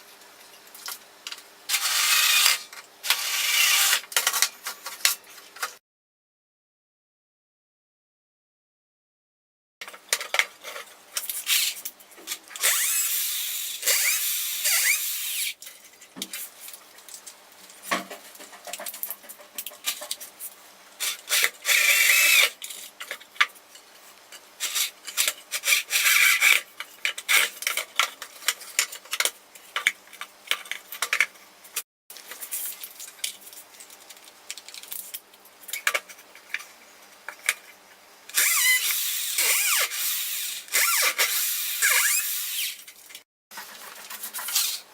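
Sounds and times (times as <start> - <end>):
power drill driving screws: 1.7 - 4.0, 12.6 - 15.6, 21.7 - 22.5, 38.3 - 42.8.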